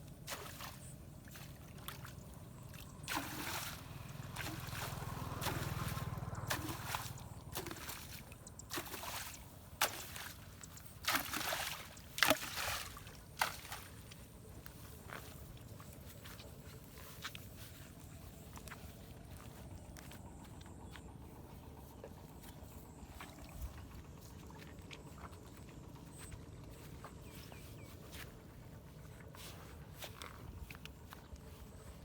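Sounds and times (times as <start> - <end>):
water splashing: 0.3 - 14.1
floodwater rushing and gurgling: 3.0 - 10.3.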